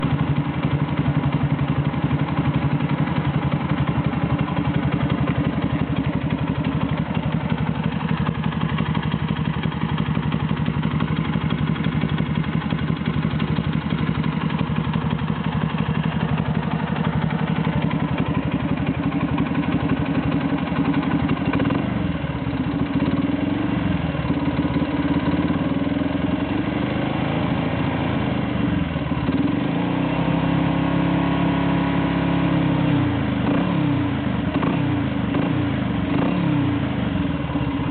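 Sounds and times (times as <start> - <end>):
motorcycle engine idling: 0.0 - 37.9.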